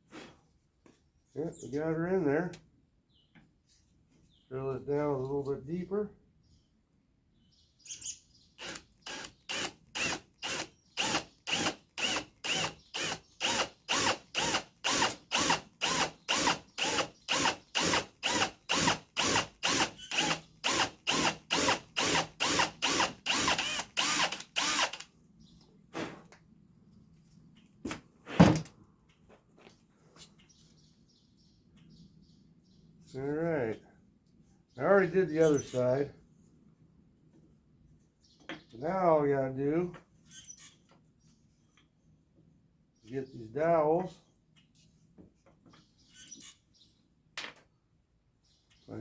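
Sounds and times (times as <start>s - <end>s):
drill boring into wood: 8.6s - 25.1s.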